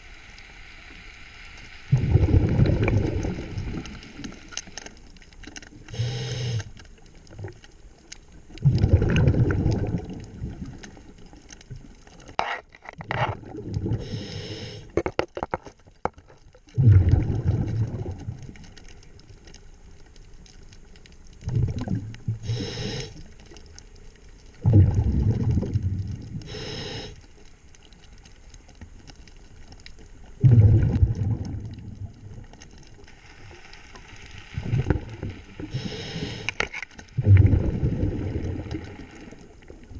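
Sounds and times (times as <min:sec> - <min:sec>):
diver breathing through regulator: 0:05.9 - 0:06.8, 0:13.9 - 0:15.0, 0:22.4 - 0:23.3, 0:26.4 - 0:27.2, 0:35.6 - 0:36.7.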